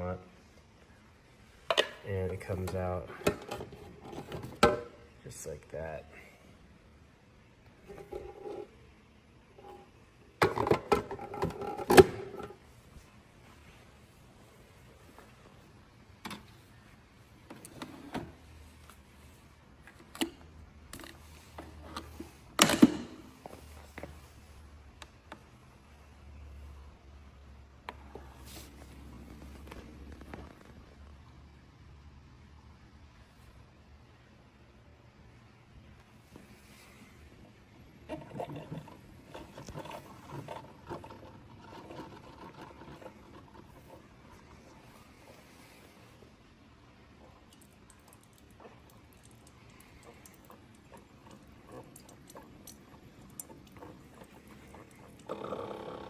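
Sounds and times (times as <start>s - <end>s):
coffee maker gurgling: 7.7s - 12.6s, 36.6s - 46.3s, 46.9s - 56.0s.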